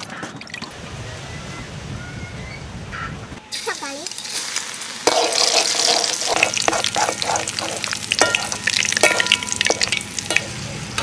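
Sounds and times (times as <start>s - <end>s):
food sizzling in oil: 3.5s - 11.0s
metal spoon scraping a wok: 4.2s - 11.0s.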